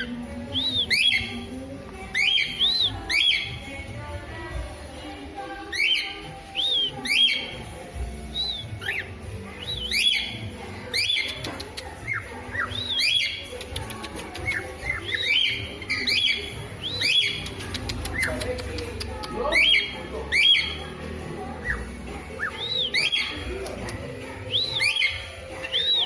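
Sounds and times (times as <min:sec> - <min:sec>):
sharp clicks: 0:13.5 - 0:14.8, 0:17.0 - 0:19.4.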